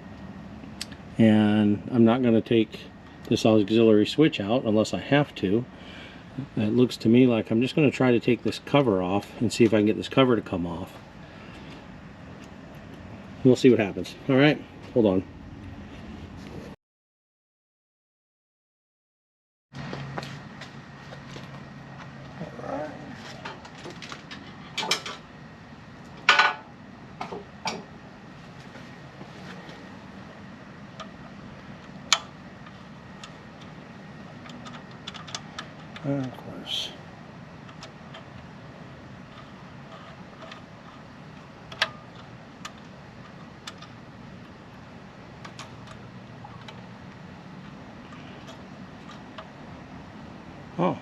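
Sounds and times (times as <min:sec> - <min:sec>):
steady low hum: 0:00.0 - 0:16.8, 0:19.8 - 0:51.0.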